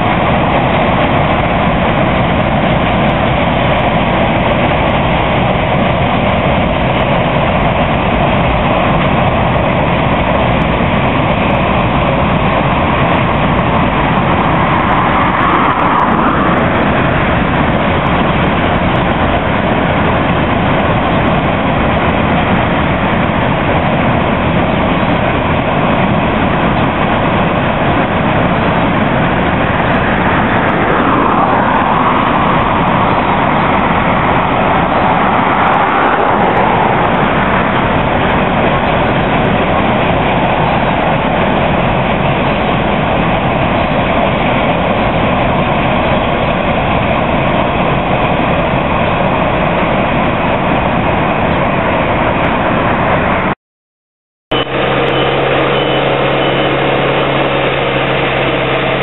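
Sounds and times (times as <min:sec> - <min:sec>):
freight train wagons rolling: 0:54.6 - 0:59.0.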